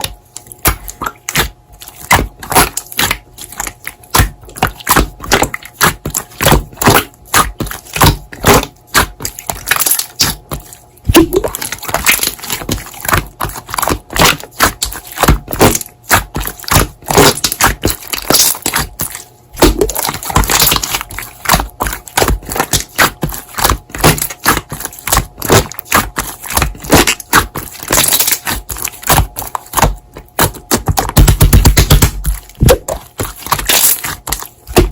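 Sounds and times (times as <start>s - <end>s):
slime squished by hand: 0.1s - 34.9s
air pops and crackles: 11.1s - 12.8s, 19.6s - 23.2s, 30.7s - 34.9s.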